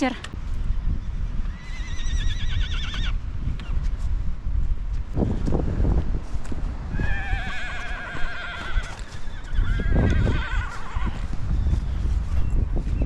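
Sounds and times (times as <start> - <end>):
wind buffeting microphone: 0.0 - 13.0
horses whinnying: 1.5 - 3.2, 7.0 - 11.3.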